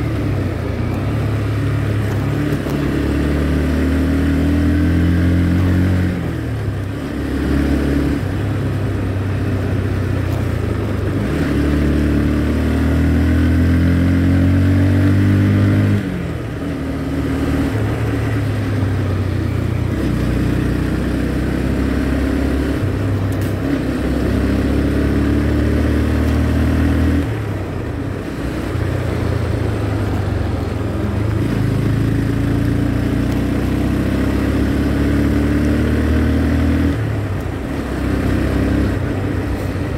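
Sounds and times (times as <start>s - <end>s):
motorcycle engine riding: 0.0s - 39.9s.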